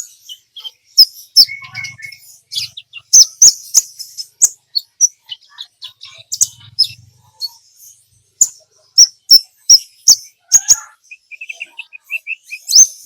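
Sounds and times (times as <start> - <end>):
bird chirping and clicking: 0.0 - 7.6, 8.4 - 13.0.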